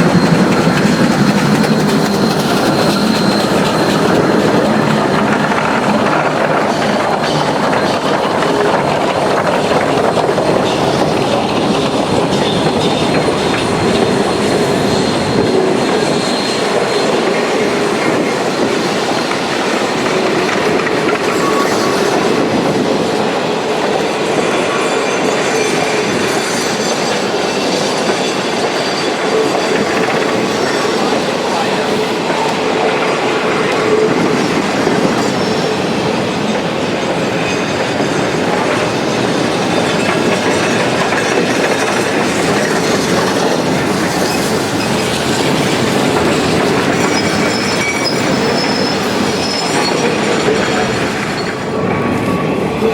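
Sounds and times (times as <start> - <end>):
faint wheel squeal: 0.0 - 5.6, 24.6 - 33.3, 39.9 - 52.9
train rolling on track: 0.0 - 52.9.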